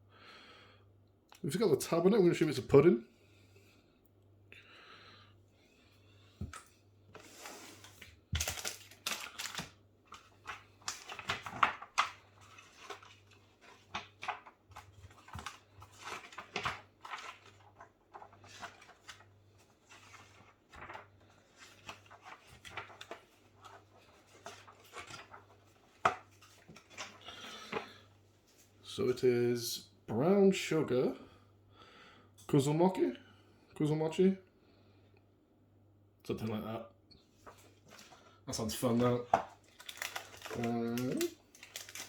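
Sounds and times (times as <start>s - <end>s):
plastic packaging crinkling: 7.2s - 28.0s, 37.4s - 42.0s.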